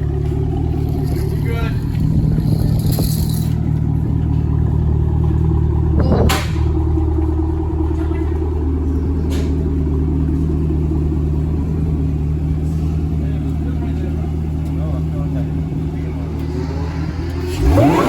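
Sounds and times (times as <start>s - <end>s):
car engine idling: 0.0s - 18.0s
exhaust pop: 5.5s - 8.4s, 15.6s - 18.0s.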